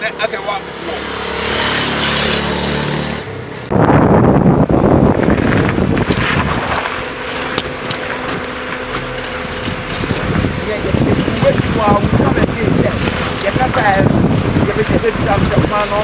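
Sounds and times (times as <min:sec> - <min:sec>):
vehicle engine running: 0:00.0 - 0:16.0
choppy rushing noise: 0:01.5 - 0:16.0.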